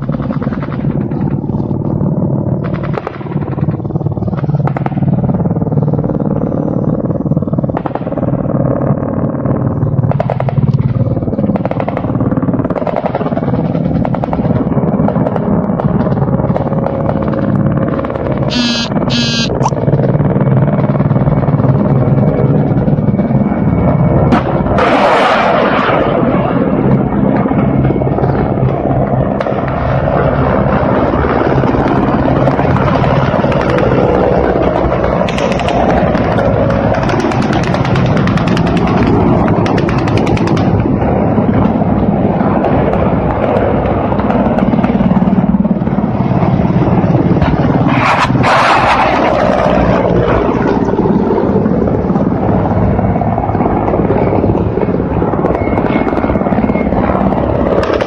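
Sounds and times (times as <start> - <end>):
helicopter engine: 0.0 - 58.0
helicopter rotor chop: 0.0 - 58.0
turbine hum: 14.5 - 24.7.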